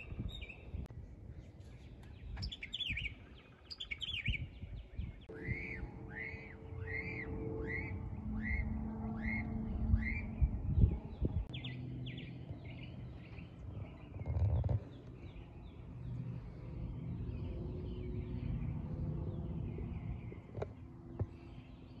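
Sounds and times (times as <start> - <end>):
birds chirping: 0.0 - 22.0
muffled rumble: 5.1 - 11.6.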